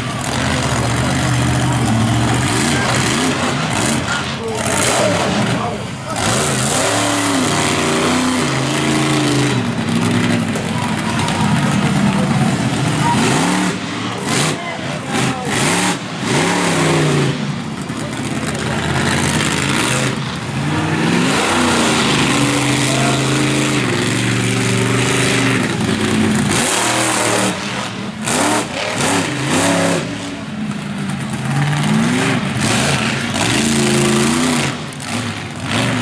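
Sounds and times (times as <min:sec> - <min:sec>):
monster truck engine revving: 0:00.0 - 0:36.0.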